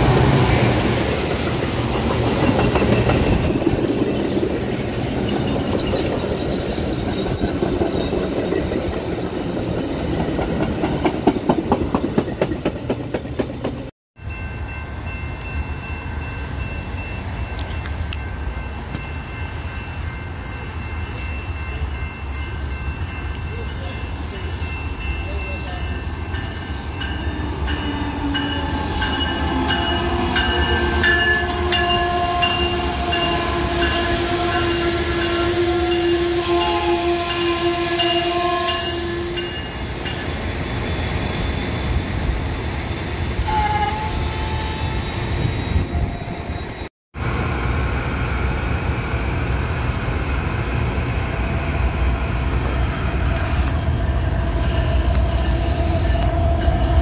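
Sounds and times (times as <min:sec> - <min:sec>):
diesel locomotives rumbling: 0:00.0 - 0:57.0
passenger train rumbling past: 0:00.0 - 0:57.0
train horn held tones: 0:26.6 - 0:39.6, 0:43.4 - 0:45.0.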